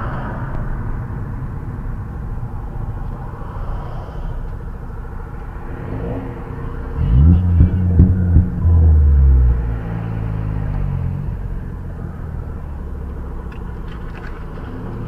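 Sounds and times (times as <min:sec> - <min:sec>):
car engine and road noise: 0:00.0 - 0:15.0
loud deep sound: 0:05.8 - 0:09.9.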